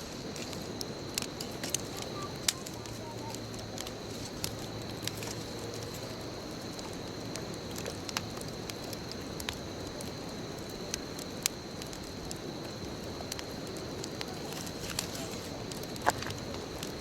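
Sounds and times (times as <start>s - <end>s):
bonfire crackling: 0.0s - 17.0s
sharp fire pops: 0.0s - 17.0s.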